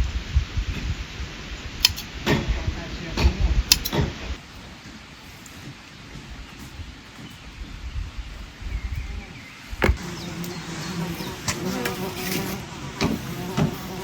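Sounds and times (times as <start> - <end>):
sharp clicks: 1.8 - 2.1, 3.2 - 4.1
insect buzzing: 9.6 - 14.0.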